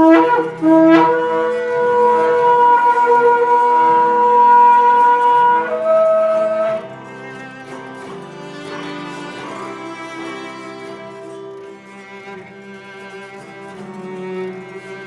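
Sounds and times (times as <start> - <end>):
shofar blowing: 0.0 - 7.7
soft background music: 0.0 - 15.0.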